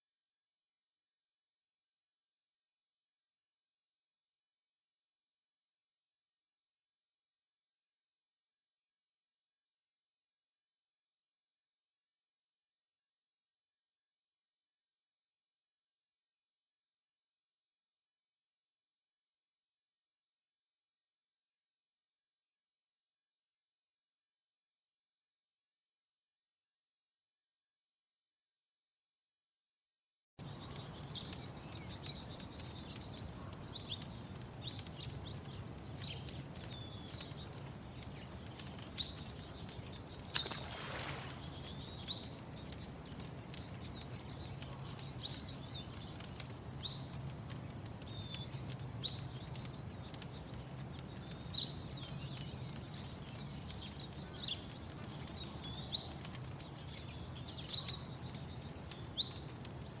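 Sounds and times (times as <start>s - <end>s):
small birds chirping: 30.4s - 60.0s
wood fire popping and crackling: 30.4s - 60.0s.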